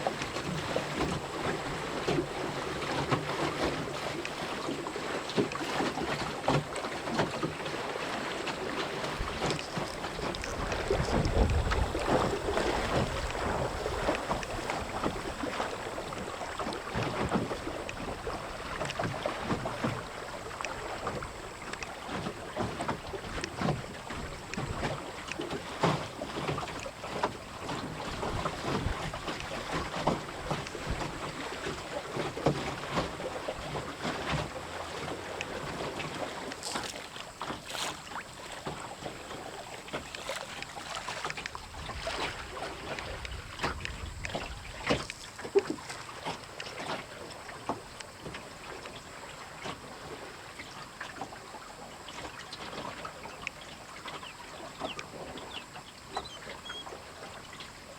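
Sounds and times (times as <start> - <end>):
short splashes: 0.0 - 48.4
water slapping against hull: 0.0 - 57.9
wind buffeting microphone: 9.1 - 21.9, 41.5 - 45.1.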